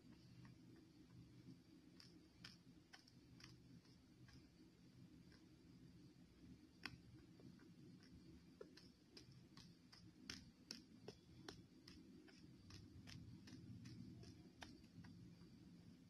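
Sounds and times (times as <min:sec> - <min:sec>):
low steady hum: 0:00.0 - 0:16.0
teeth crunching hard clay: 0:07.9 - 0:15.3.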